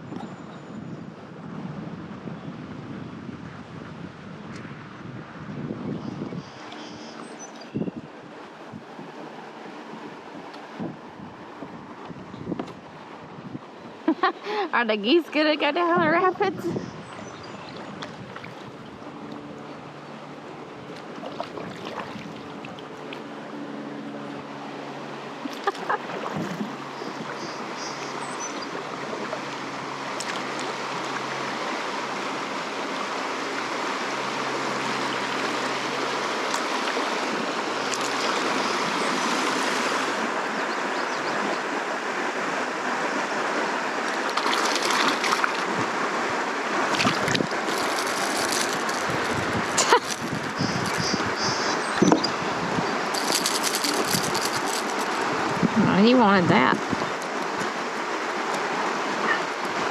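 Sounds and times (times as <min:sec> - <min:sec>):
river rapids rushing: 0:28.6 - 0:59.9.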